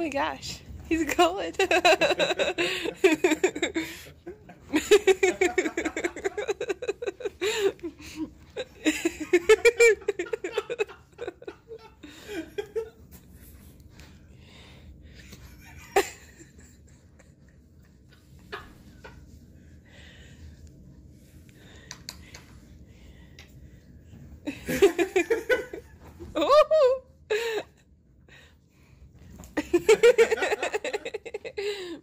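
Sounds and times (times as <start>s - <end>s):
person laughing: 1.6s - 12.9s, 24.5s - 27.7s.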